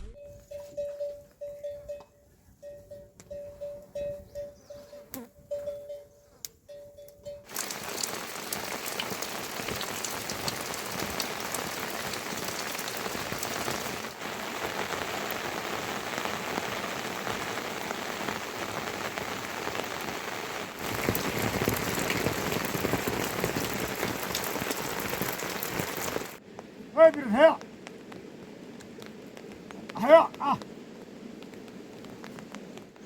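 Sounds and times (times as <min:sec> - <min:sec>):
steady rain falling: 0:07.5 - 0:33.0.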